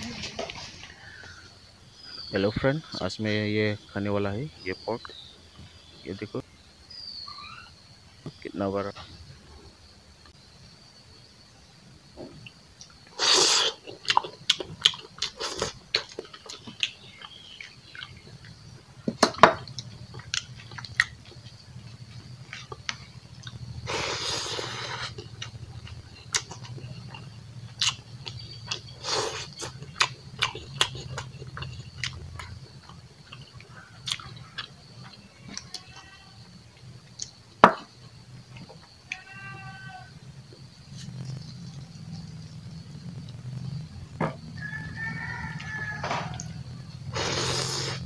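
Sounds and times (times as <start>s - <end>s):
slurping: 13.2s - 14.2s, 28.7s - 32.5s, 47.1s - 48.0s
wet chewing and lip smacking: 13.7s - 18.6s, 19.7s - 21.5s, 24.9s - 35.2s.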